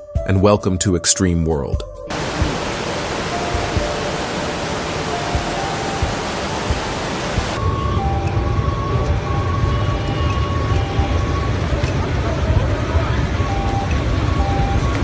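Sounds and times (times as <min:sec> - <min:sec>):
muddy floodwater rushing: 0:02.1 - 0:07.6
faint steady tones: 0:02.1 - 0:15.0.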